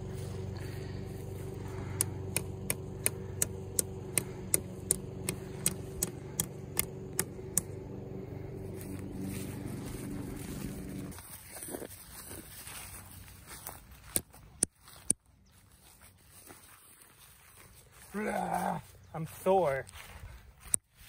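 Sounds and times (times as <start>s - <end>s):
motor humming: 0.0s - 11.2s
sharp evenly spaced clicks: 1.5s - 8.1s.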